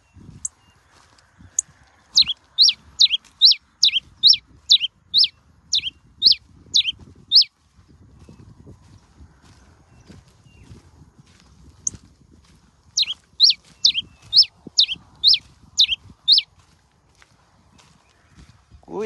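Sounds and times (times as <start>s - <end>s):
finch singing whistled notes: 1.5s - 7.5s, 13.0s - 16.5s
high bird chip: 1.5s - 7.5s, 13.0s - 16.5s.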